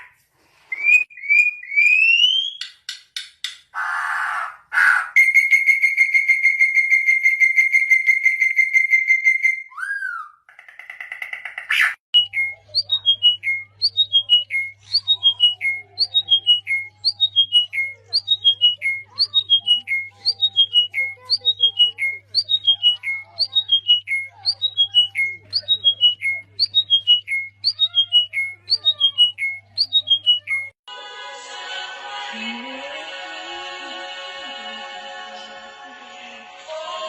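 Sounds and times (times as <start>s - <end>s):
birds singing: 11.8s - 30.8s.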